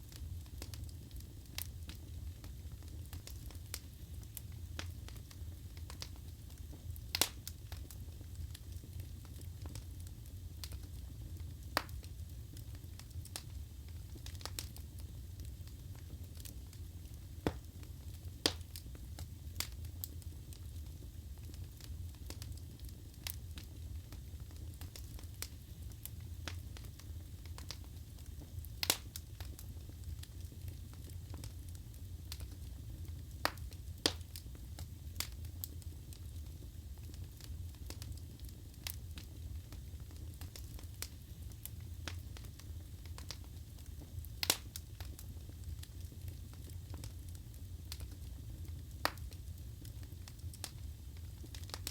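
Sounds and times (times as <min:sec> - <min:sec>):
flames rumbling: 0:00.0 - 0:51.9
burning wood popping and snapping: 0:00.4 - 0:08.0, 0:15.4 - 0:20.7, 0:21.5 - 0:32.6, 0:33.4 - 0:36.2, 0:37.1 - 0:50.8, 0:51.4 - 0:51.9.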